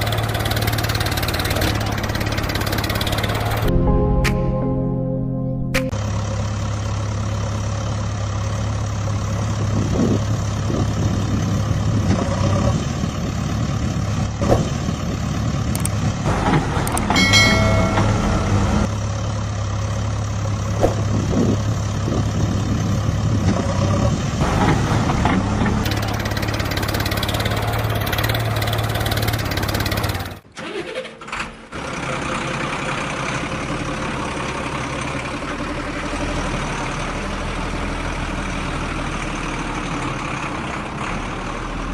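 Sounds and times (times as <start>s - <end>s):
heavy vehicle engine humming: 0.0s - 30.5s, 31.6s - 41.9s
short higher tone: 3.6s - 7.0s, 17.2s - 19.0s.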